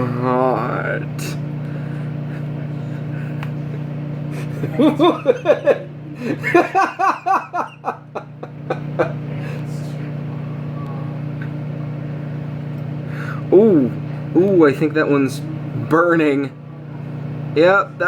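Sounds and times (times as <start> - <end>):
microwave oven humming: 0.0 - 18.0
person laughing: 2.0 - 9.3.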